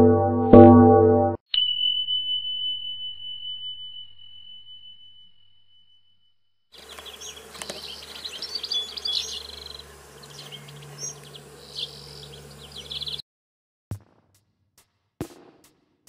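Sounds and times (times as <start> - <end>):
songbird twittering trills: 6.8 - 13.2
steady low hum: 6.8 - 13.2.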